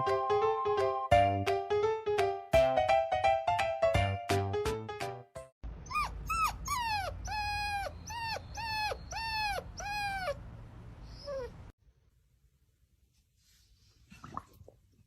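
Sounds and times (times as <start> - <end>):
dog whining: 5.8 - 11.7.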